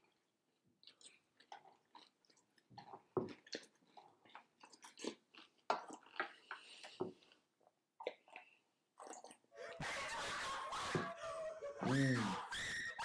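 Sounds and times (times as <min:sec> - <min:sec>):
person chewing crunchy cereal: 0:00.0 - 0:09.5.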